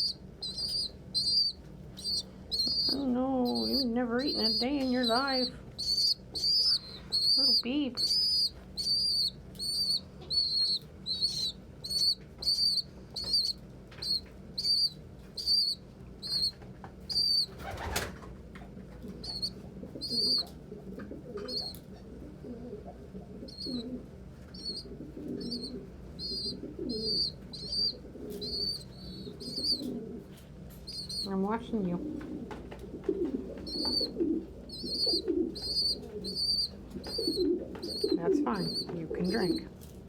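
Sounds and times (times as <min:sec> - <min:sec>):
pigeons cooing: 0:00.0 - 0:39.7
young pigeon peeping: 0:00.0 - 0:40.0
wings flapping: 0:00.4 - 0:21.9, 0:32.0 - 0:40.0.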